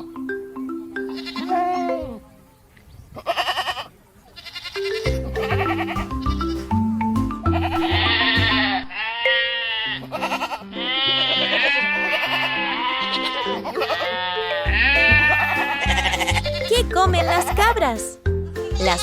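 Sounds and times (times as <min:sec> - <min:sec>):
soft instrumental music: 0:00.0 - 0:02.4, 0:04.8 - 0:19.0
goats bleating: 0:01.1 - 0:02.2, 0:03.2 - 0:06.6, 0:07.5 - 0:17.5.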